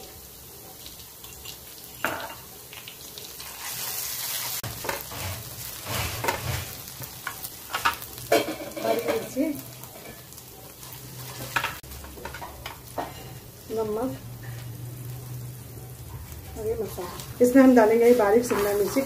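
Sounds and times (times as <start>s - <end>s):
onion sizzling in hot oil: 0.0s - 19.0s
spatula scraping a pan: 3.4s - 13.4s, 16.9s - 19.0s.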